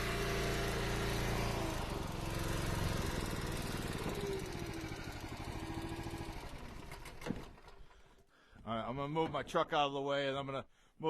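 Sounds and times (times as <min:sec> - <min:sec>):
small gasoline engine running: 0:00.0 - 0:08.0.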